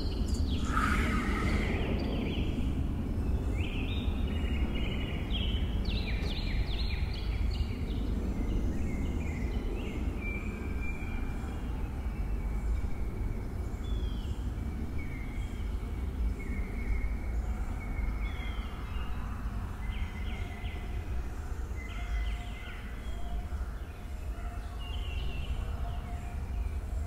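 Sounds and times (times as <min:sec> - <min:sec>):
steady low rumble: 0:00.1 - 0:04.7
birds chirping: 0:00.2 - 0:05.0.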